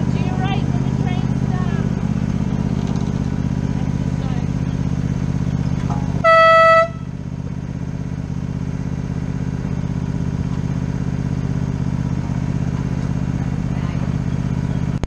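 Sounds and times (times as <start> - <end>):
fast-pulsing engine rumble: 0.0 - 15.0
locomotive horn blast: 6.2 - 7.2.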